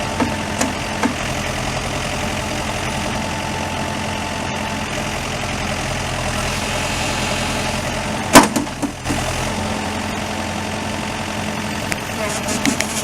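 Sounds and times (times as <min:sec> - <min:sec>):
diesel engine idling: 0:00.0 - 0:13.0
sharp loud clunk: 0:08.3 - 0:09.1.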